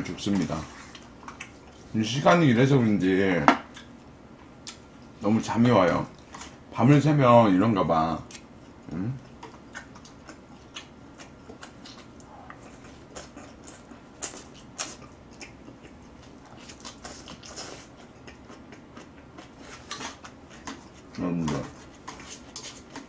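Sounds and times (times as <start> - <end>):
wet chewing and lip-smacking: 0.8 - 1.9, 4.6 - 5.1, 8.3 - 23.0.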